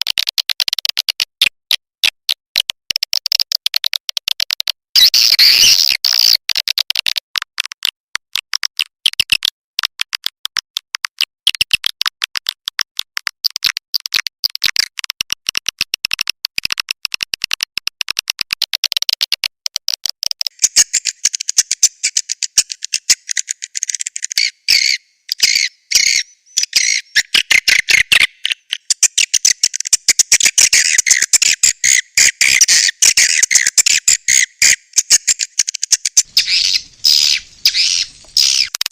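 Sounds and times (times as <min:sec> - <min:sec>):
swiftlets chirping: 0:30.8 - 0:38.9.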